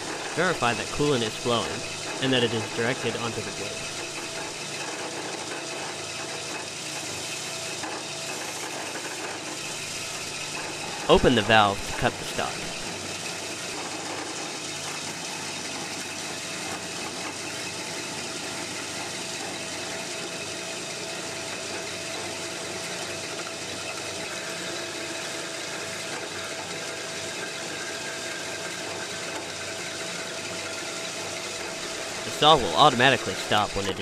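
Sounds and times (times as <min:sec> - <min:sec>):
bandsaw cutting: 0:00.0 - 0:05.3, 0:06.1 - 0:13.2, 0:31.1 - 0:34.0.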